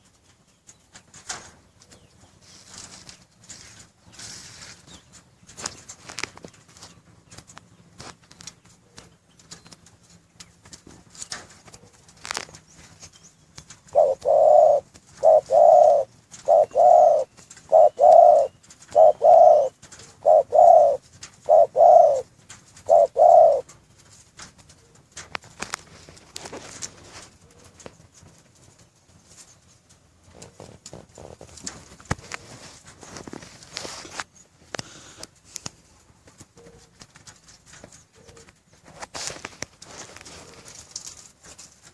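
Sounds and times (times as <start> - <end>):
dove cooing: 13.8 - 23.8, 35.9 - 37.1, 37.8 - 38.9, 39.9 - 41.1.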